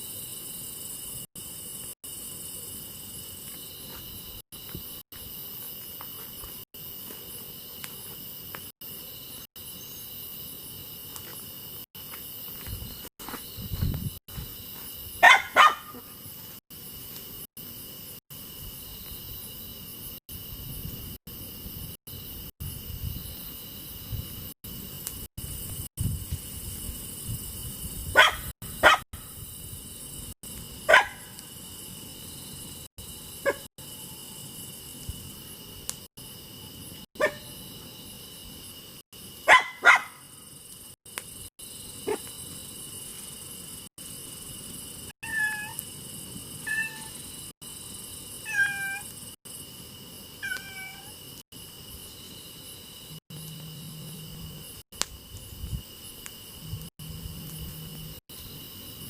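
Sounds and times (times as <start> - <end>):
crickets chirping: 0.0 - 59.0
cat meowing: 45.2 - 45.8, 46.7 - 47.1, 48.4 - 49.1, 50.4 - 51.2.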